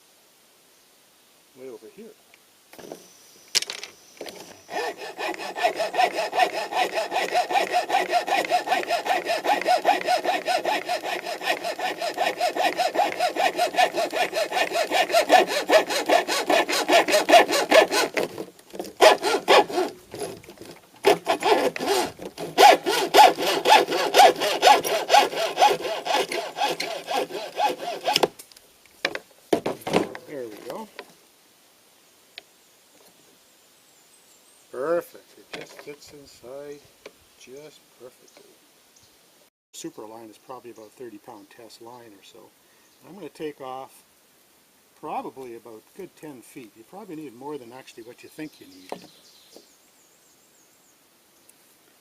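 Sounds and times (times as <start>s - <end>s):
hacksaw cutting: 4.2s - 28.4s.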